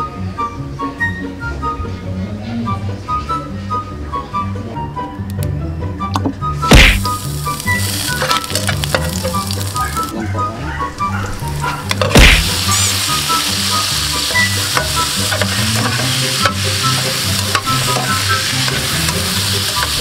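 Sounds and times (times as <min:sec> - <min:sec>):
garlic sizzling in oil: 0:06.6 - 0:10.1, 0:11.4 - 0:20.0
food dropped into hot oil: 0:07.1 - 0:09.7
metal spatula scraping pan: 0:14.6 - 0:20.0.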